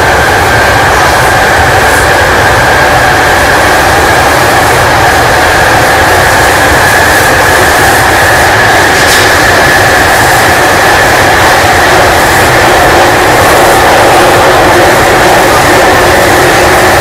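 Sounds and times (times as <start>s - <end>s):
high whine of train: 0.0s - 17.0s
underground train rumbling: 0.0s - 17.0s.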